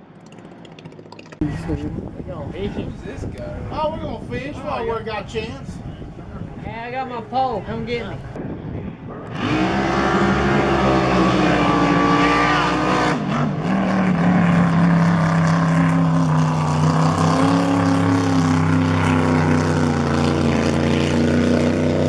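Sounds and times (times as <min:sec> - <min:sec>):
motorboat engine running: 0:00.0 - 0:03.0, 0:09.6 - 0:22.0.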